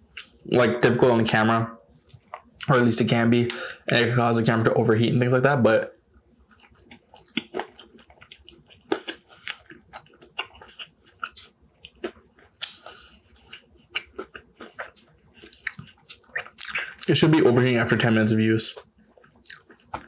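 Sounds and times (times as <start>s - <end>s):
person chewing food: 0.0s - 0.4s, 2.0s - 2.7s, 6.2s - 17.6s, 18.7s - 20.0s
wet mouth clicks and smacks: 6.6s - 17.1s.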